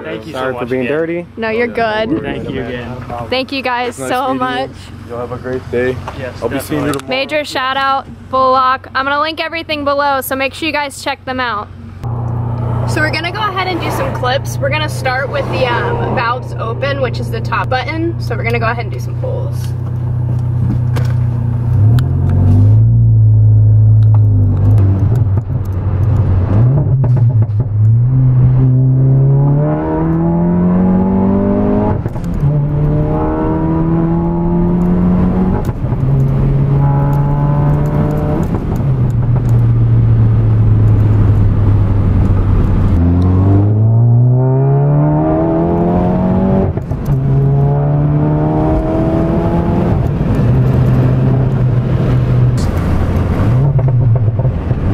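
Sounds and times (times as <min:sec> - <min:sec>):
car engine accelerating: 0:11.7 - 0:54.9.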